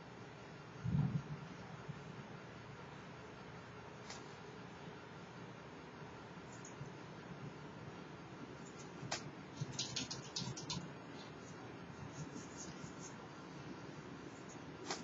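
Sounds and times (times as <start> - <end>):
keyboard keystrokes: 9.1 - 10.8.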